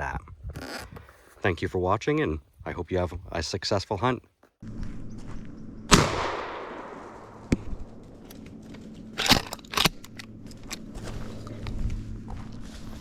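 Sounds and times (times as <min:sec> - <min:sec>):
loud gunshot echoing: 0:05.9 - 0:07.9.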